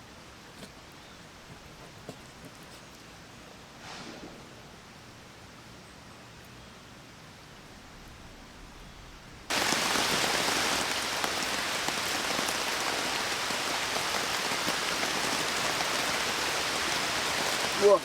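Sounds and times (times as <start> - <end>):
heavy rain: 9.5 - 18.0.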